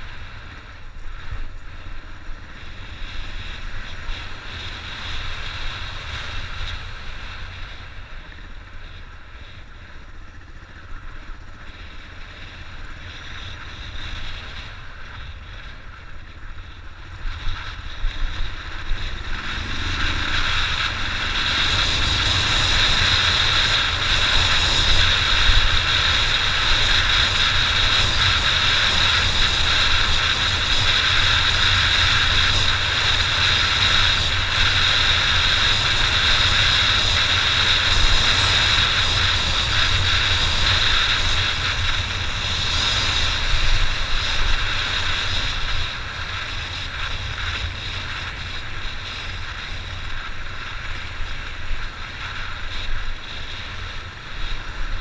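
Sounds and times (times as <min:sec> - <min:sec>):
dirt bike engine running: 0:00.0 - 0:55.0
wind hiss: 0:00.0 - 0:55.0.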